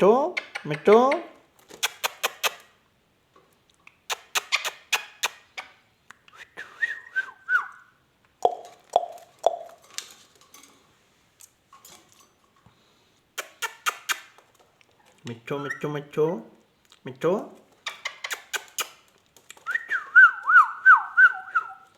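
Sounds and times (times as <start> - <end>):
parrot clicking: 0.4 - 2.7, 8.3 - 9.8, 13.4 - 14.5, 17.8 - 19.8.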